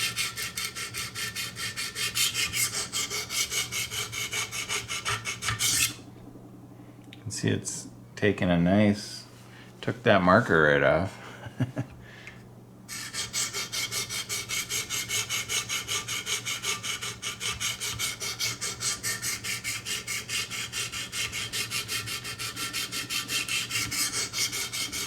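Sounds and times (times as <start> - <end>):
stones rasping along knife blade: 0.0 - 6.0, 12.9 - 25.0.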